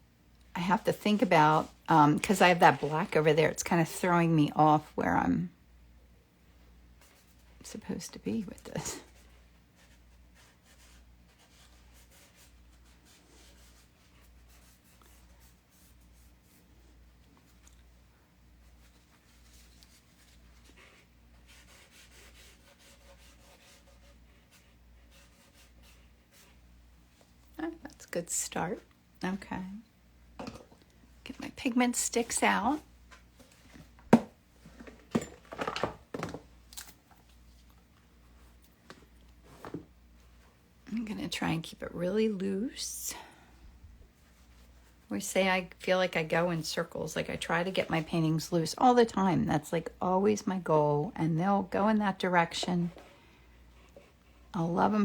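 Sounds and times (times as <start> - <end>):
brush strokes on canvas: 18.6 - 27.4
low steady hum: 23.8 - 55.0.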